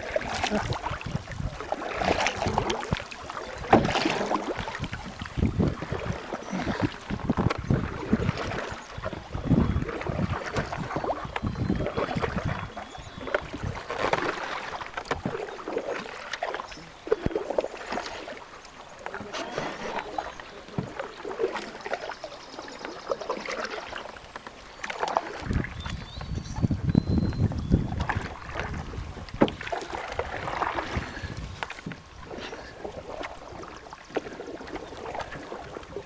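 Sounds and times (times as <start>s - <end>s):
wind on microphone: 0.0s - 14.3s, 25.3s - 33.8s
canoe paddles in water: 0.0s - 36.0s
water splashing and dripping: 0.0s - 36.0s.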